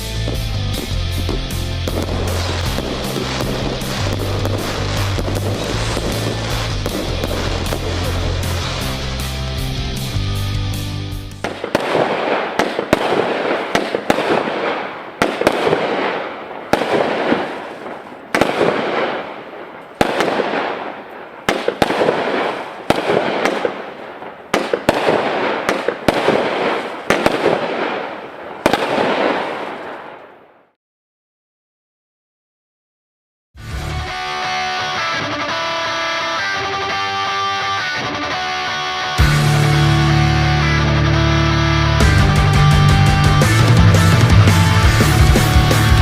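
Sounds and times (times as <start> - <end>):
firework bangs: 0.0 - 10.2, 11.3 - 30.7
music: 0.0 - 11.4, 33.6 - 46.0.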